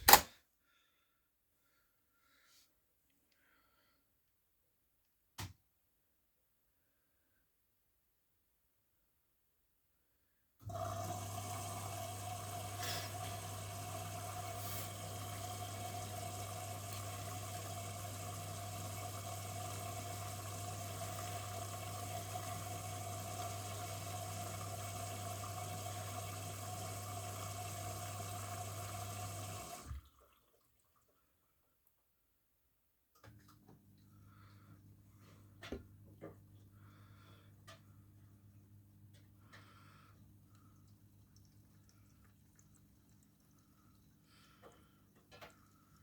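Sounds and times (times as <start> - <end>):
washing machine filling with water: 10.6 - 31.2, 36.3 - 46.0.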